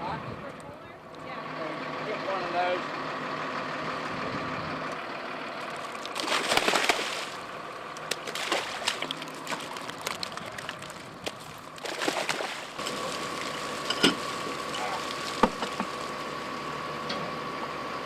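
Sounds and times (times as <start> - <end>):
water sloshing and splashing: 5.6 - 16.4.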